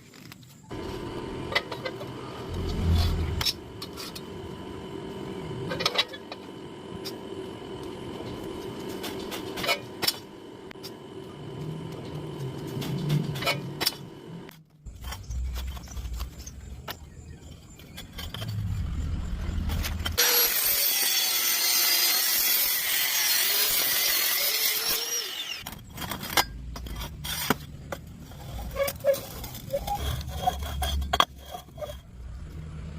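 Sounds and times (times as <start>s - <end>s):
angle grinder cutting metal: 0.7s - 14.4s, 19.8s - 25.8s.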